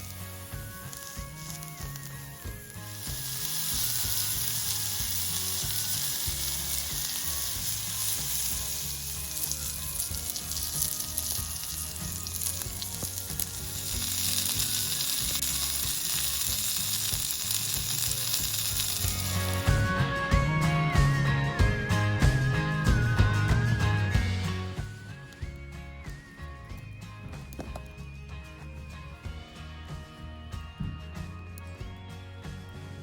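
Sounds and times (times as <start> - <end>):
food sizzling in a pan: 0.0 - 19.8.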